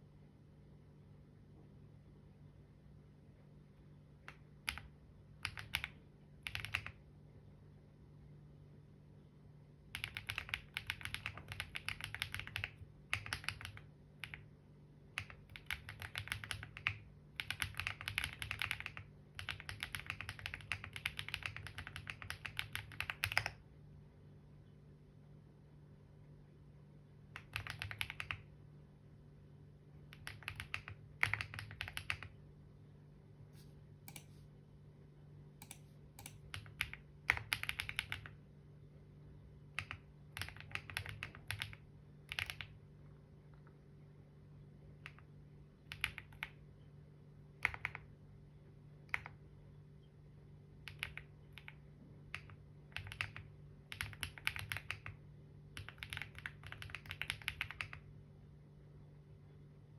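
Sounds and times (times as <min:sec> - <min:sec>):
faint low hum: 0:00.0 - 0:59.9
keyboard typing: 0:04.2 - 0:07.0, 0:09.9 - 0:14.5, 0:15.1 - 0:23.6, 0:27.3 - 0:28.5, 0:30.0 - 0:32.4, 0:34.1 - 0:34.4, 0:35.6 - 0:38.4, 0:39.7 - 0:42.8, 0:44.9 - 0:46.6, 0:47.5 - 0:48.1, 0:49.0 - 0:49.4, 0:50.8 - 0:58.1.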